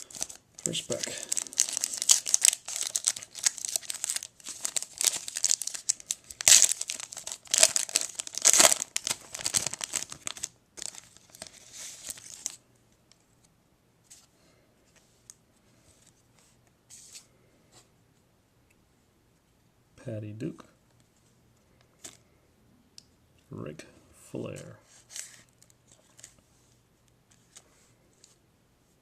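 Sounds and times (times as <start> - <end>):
wrapper being torn and crinkled: 0.0 - 12.6.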